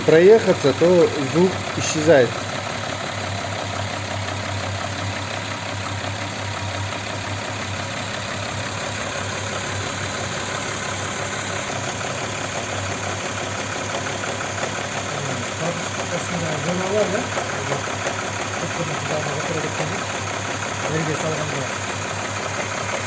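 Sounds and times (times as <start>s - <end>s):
car engine idling: 0.0s - 23.0s
rattling engine knock: 0.0s - 23.0s.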